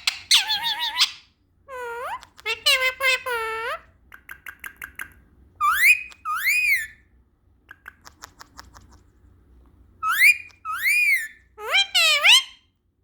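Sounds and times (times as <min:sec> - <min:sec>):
parrot chirps and whistle: 0:00.0 - 0:07.1, 0:10.0 - 0:12.7.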